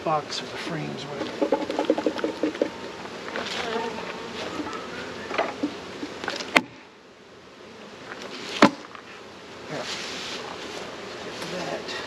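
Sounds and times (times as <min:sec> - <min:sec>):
honeybees buzzing: 0:00.0 - 0:12.0
sharp knocks: 0:01.2 - 0:02.8.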